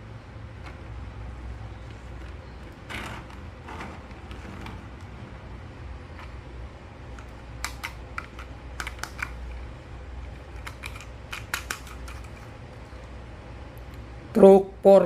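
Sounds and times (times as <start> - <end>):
low steady hum: 0.0 - 15.0
plastic toys clicking: 7.2 - 9.6, 10.3 - 12.5.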